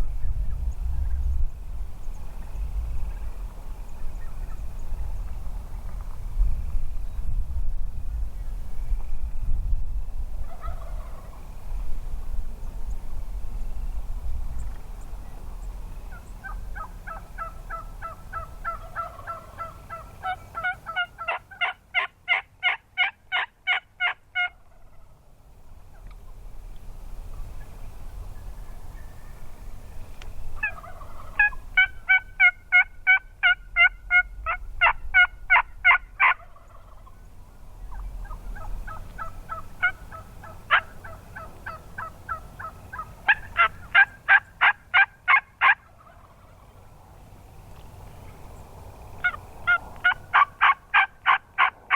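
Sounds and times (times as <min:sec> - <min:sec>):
turkey yelping: 0:10.4 - 0:11.4, 0:16.1 - 0:25.2, 0:30.6 - 0:37.3, 0:37.9 - 0:46.9, 0:49.2 - 0:51.9.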